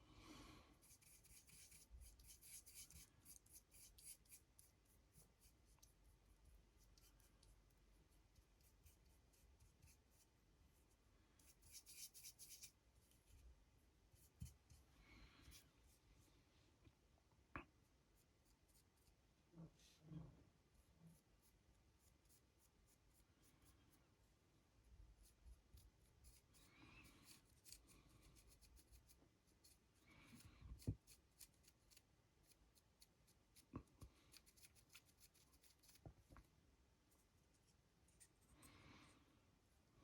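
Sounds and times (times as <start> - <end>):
paintbrush brushing: 0.7 - 13.5, 20.7 - 24.3, 25.1 - 38.6.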